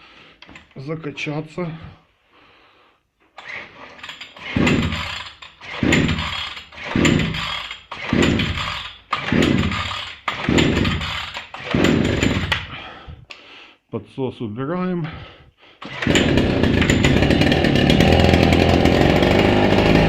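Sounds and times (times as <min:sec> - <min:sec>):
recoil starter pulls: 0:03.3 - 0:12.8, 0:15.8 - 0:20.0
engine turning over whirr: 0:03.4 - 0:12.7, 0:15.8 - 0:20.0.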